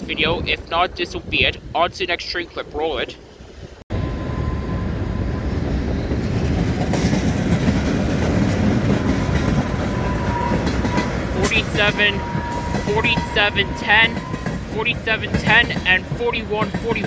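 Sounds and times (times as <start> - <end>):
train wheels rumbling on rails: 3.9 - 17.0.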